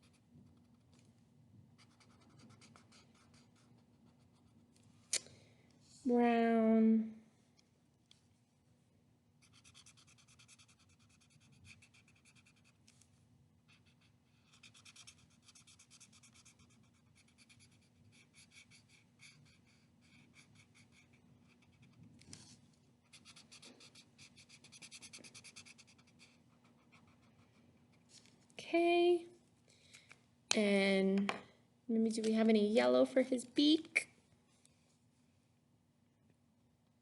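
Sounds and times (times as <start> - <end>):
pencil scribbling on paper: 0.0 - 0.8, 1.8 - 4.6, 9.4 - 12.8, 13.7 - 22.0, 23.0 - 28.0
faint steady hum: 0.0 - 37.0.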